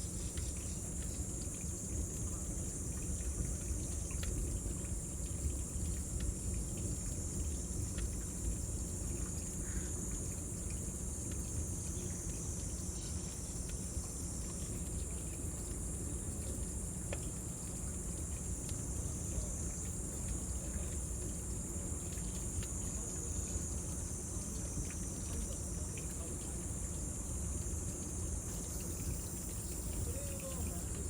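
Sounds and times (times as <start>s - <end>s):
cicadas buzzing: 7.4s - 14.8s, 19.0s - 31.0s.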